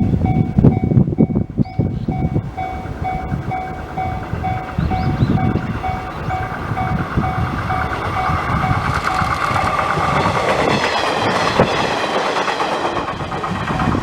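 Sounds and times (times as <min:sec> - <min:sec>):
train rumbling: 0:00.0 - 0:14.0
train wheels on rails: 0:00.0 - 0:14.0.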